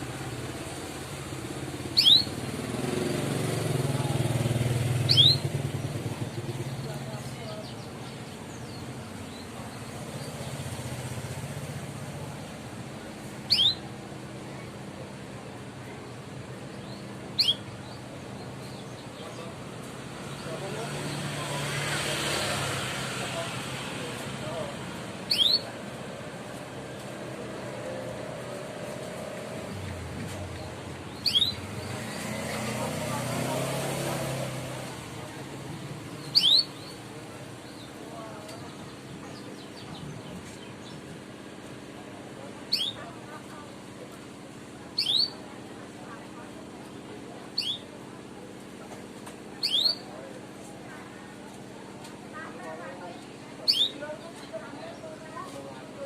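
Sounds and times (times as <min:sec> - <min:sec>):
low engine rumble: 0:00.0 - 0:56.0
canary chirping: 0:00.5 - 0:07.0, 0:13.4 - 0:13.9, 0:16.7 - 0:19.4, 0:25.2 - 0:25.8, 0:29.6 - 0:34.8, 0:36.1 - 0:38.6, 0:42.7 - 0:43.1, 0:45.0 - 0:45.4, 0:47.5 - 0:47.9, 0:49.6 - 0:50.1, 0:53.6 - 0:54.0
canary chirp call: 0:01.9 - 0:03.1, 0:04.9 - 0:05.8, 0:13.4 - 0:13.9, 0:16.8 - 0:18.0, 0:25.2 - 0:25.8, 0:31.1 - 0:32.7, 0:36.2 - 0:37.0, 0:42.7 - 0:43.1, 0:45.0 - 0:45.4, 0:47.5 - 0:47.9, 0:49.6 - 0:50.1, 0:53.6 - 0:54.0.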